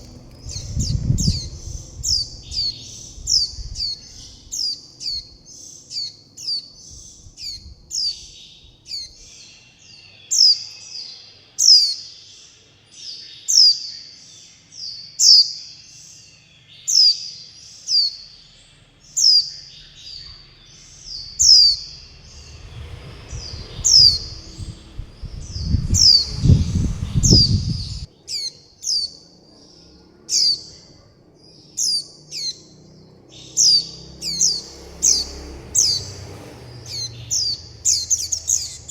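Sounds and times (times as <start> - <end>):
low rumble: 0.0 - 5.5, 19.8 - 28.1
young birds begging calls: 0.0 - 10.8, 16.9 - 38.9.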